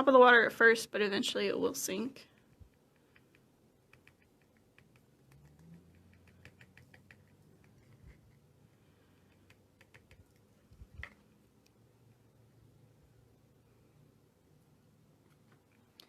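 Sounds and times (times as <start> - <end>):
small objects ticking and clicking: 2.2 - 8.0.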